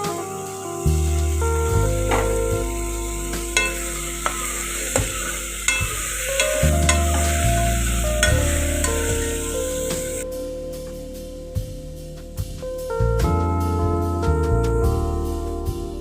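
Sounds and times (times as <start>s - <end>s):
background music: 0.0s - 16.0s
gravy sizzling in a pan: 0.8s - 10.2s
spoon clicking against pan: 3.6s - 7.4s.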